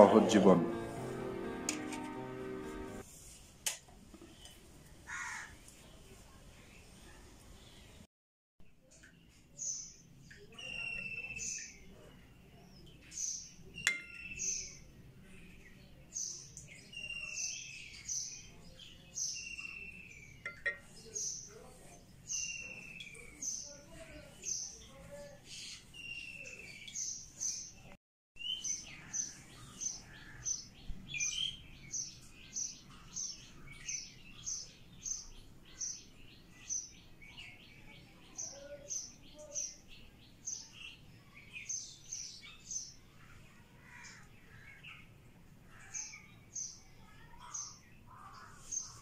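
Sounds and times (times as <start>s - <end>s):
birds twittering: 12.9s - 21.7s
bird repeating high chirp: 13.8s - 14.5s.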